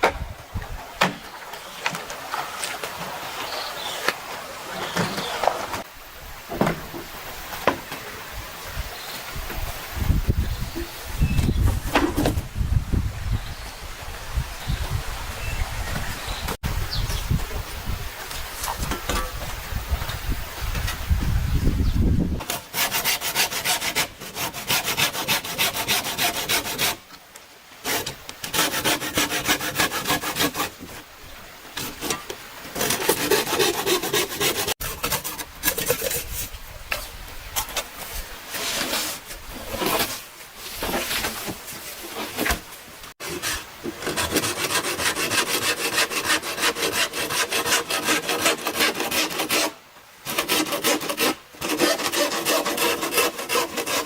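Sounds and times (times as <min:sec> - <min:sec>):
hand tool rasping bamboo: 0:22.4 - 0:27.0, 0:27.8 - 0:31.0, 0:31.8 - 0:36.5, 0:43.2 - 0:54.0.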